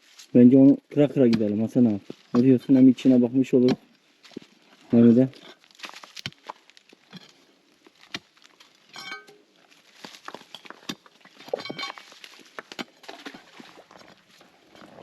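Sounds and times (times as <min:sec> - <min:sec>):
stones knocking and clinking: 0:03.6 - 0:14.2.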